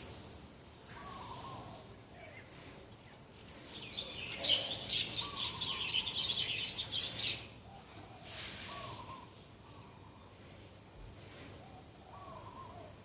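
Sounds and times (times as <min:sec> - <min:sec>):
small birds chirping: 0:00.9 - 0:10.8.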